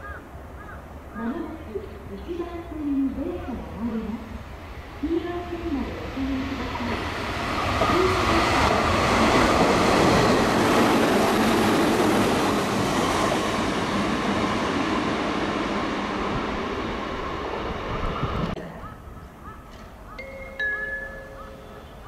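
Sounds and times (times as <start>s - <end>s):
train wheels on rails passing: 1.7s - 18.6s.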